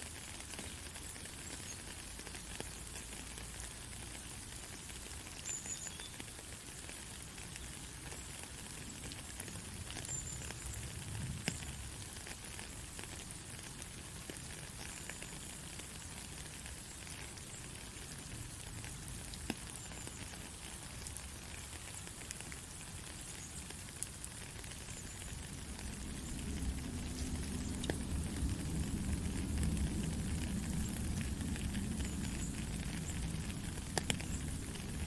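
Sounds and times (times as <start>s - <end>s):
heavy rain falling: 0.1s - 35.0s
sharp raindrop hits: 24.6s - 35.0s.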